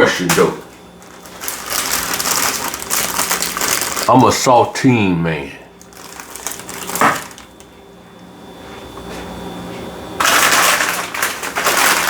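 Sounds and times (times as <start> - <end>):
crackers crinkling: 0.6 - 4.7, 5.8 - 7.7, 10.2 - 12.0.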